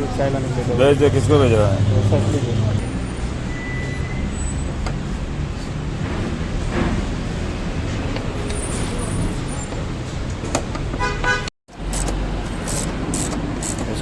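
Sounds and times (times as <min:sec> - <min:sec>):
road traffic noise: 0:00.0 - 0:14.0
car horn toot: 0:11.0 - 0:11.5.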